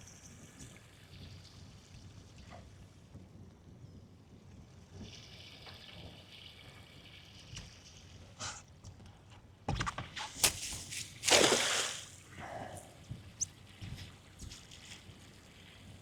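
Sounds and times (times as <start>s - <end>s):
cast net clicks and knocks: 9.7s - 12.1s
net splashing into water: 10.3s - 12.3s.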